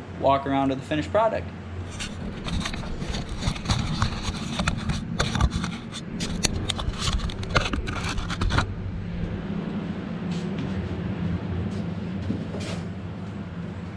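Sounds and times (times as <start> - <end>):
steady low hum: 0.0 - 13.9
clicks and scrapes of hard parts: 1.9 - 8.7.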